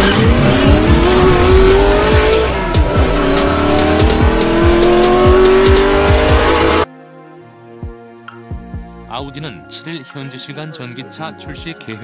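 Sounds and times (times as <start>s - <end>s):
car engine accelerating: 0.0s - 6.9s
electronic music with kick drum: 0.0s - 6.9s.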